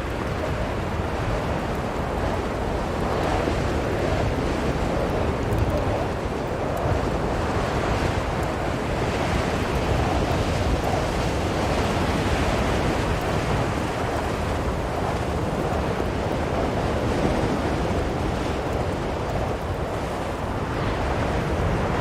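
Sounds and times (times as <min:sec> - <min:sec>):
blizzard wind blowing: 0:00.0 - 0:22.0.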